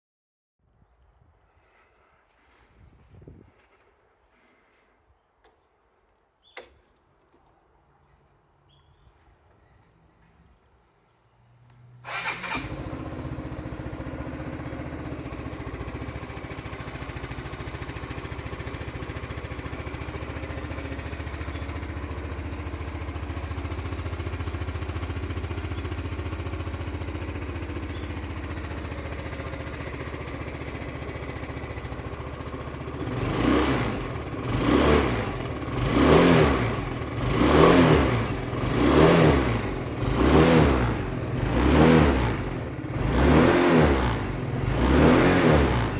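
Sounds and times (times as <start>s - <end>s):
scooter engine idling and revving: 12.0s - 45.9s.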